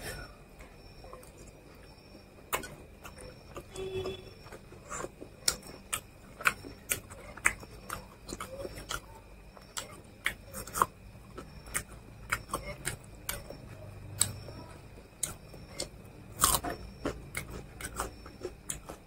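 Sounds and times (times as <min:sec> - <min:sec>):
man chewing food: 0:00.0 - 0:19.0.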